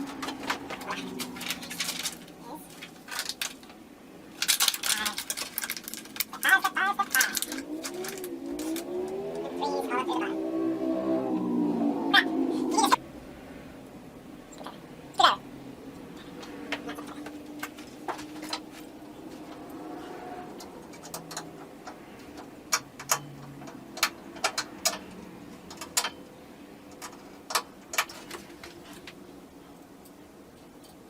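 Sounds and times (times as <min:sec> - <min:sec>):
tools clicking and knocking: 0:20.6 - 0:26.3, 0:26.9 - 0:29.2.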